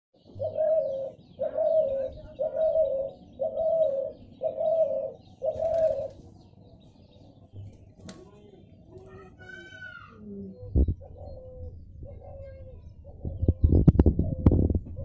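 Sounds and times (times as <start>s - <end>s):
bird giving low calls: 0.2s - 6.3s, 9.1s - 15.0s.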